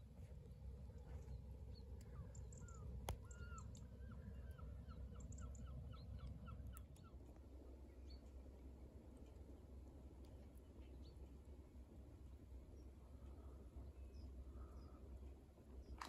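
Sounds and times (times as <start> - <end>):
low steady rumble: 0.0 - 16.0
bird calls: 1.2 - 7.2.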